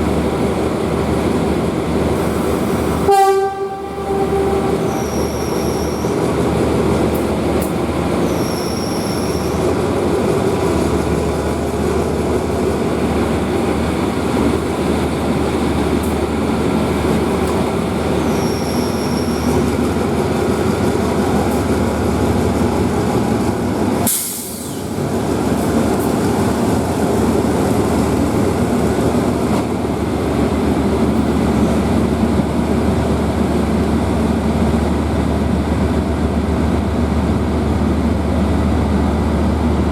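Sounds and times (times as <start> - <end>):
diesel train engine hum: 0.0 - 39.9
sharp hiss: 24.0 - 24.9.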